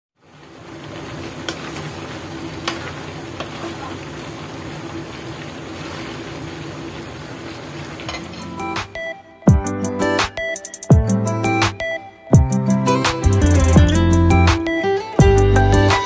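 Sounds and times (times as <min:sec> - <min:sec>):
vegetables sizzling and bubbling: 0:00.2 - 0:09.1.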